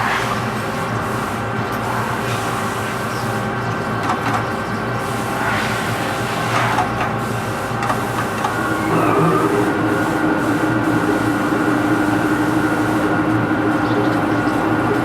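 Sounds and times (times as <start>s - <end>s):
lathe cutting noise: 8.0s - 15.0s
lathe running: 8.0s - 15.0s.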